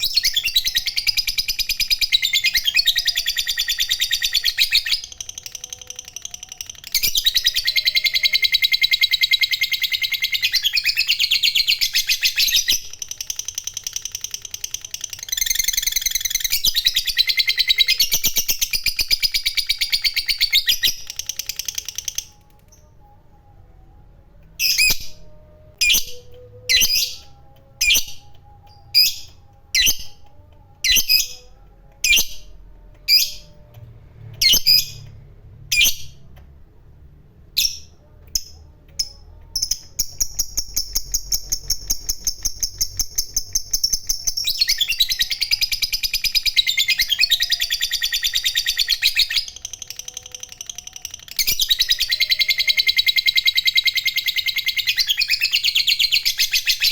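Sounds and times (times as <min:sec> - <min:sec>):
lovebird sharp chirps: 0:24.6 - 0:33.8.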